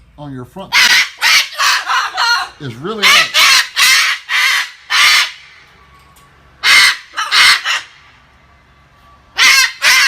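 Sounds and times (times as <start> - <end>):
parrot squawking: 0.7 - 5.6, 6.6 - 8.2, 9.3 - 10.0.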